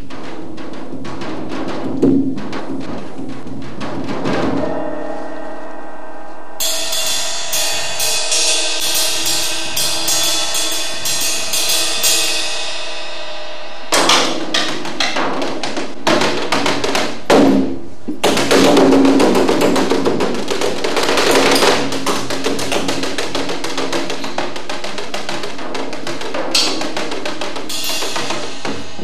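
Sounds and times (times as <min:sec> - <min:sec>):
sharp bright percussion strikes: 0:00.0 - 0:29.0
ringing sustained tones: 0:04.4 - 0:14.3.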